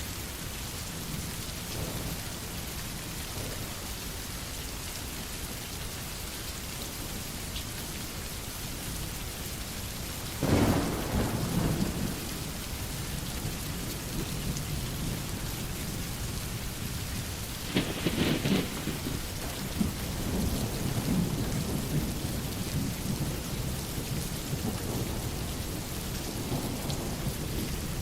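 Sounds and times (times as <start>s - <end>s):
steady rain: 0.0s - 28.0s
thunderclap rumbling: 1.0s - 4.2s, 10.4s - 28.0s.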